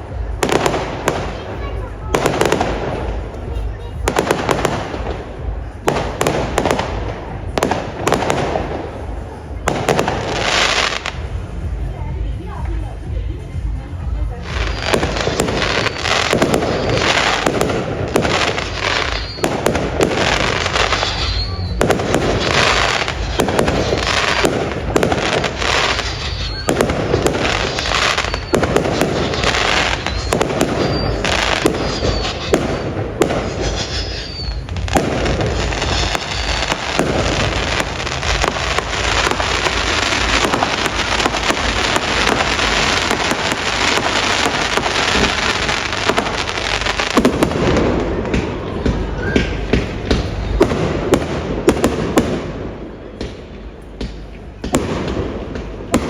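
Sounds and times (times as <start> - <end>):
fireworks banging and crackling: 0.0 - 56.0.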